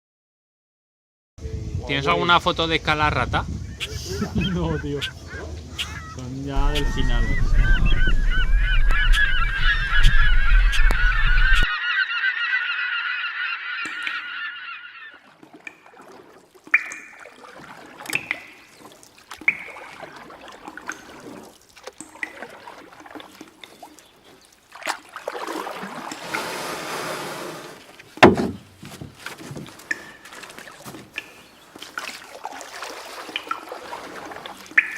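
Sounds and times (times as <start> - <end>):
flock of birds honking: 3.8 - 15.3
sharp knock: 28.2 - 28.6.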